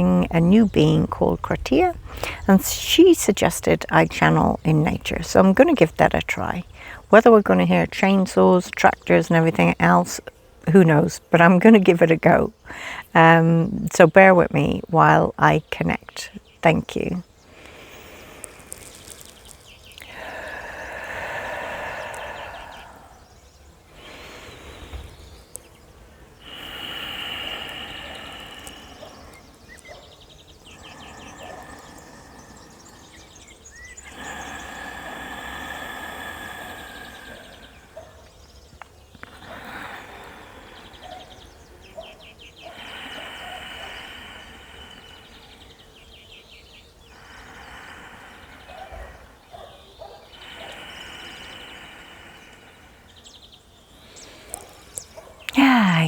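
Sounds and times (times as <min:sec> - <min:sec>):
low wind rumble: 0:00.0 - 0:09.9, 0:19.4 - 0:39.2
birdsong with quick trills: 0:27.8 - 0:35.0.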